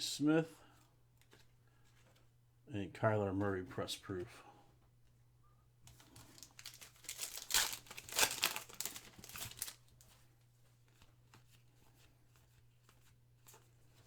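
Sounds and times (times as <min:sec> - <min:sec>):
foil wrapper tearing and crinkling: 0:06.1 - 0:10.1.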